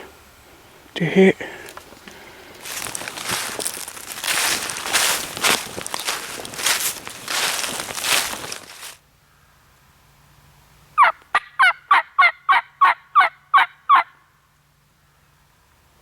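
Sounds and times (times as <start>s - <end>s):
footsteps crunching dry leaves: 1.5s - 9.0s
turkey yelps: 11.0s - 14.2s.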